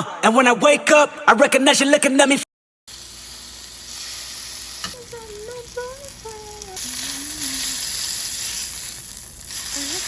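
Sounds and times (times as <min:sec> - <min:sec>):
food sizzling in a frying pan: 0:02.9 - 0:10.0.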